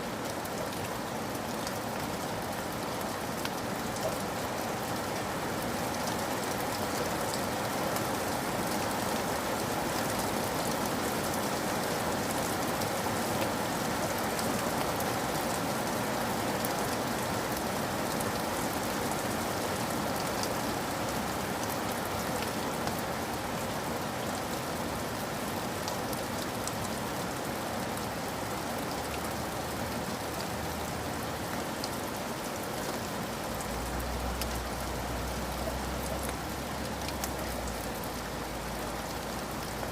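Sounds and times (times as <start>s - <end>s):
steady rain falling: 0.0s - 39.9s
raindrops ticking: 33.6s - 39.9s.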